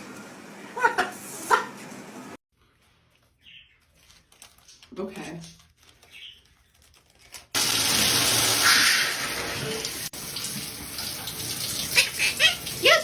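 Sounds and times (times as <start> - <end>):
water running from tap: 7.6 - 13.0.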